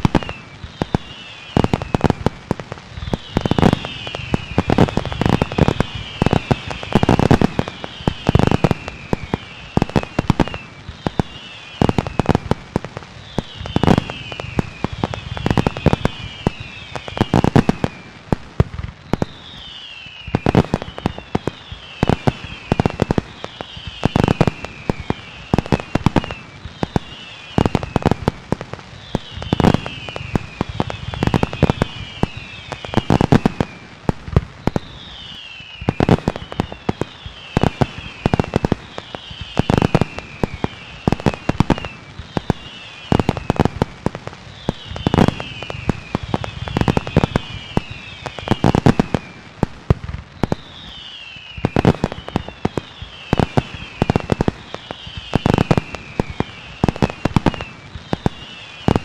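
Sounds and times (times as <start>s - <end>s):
falling firework whistles: 0.0s - 59.0s
fireworks bangs and crackles: 0.0s - 59.0s.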